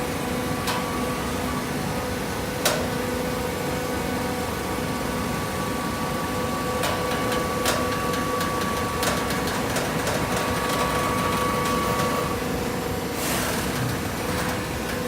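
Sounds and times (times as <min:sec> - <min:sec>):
sharp mechanical clacks: 0:06.8 - 0:12.2.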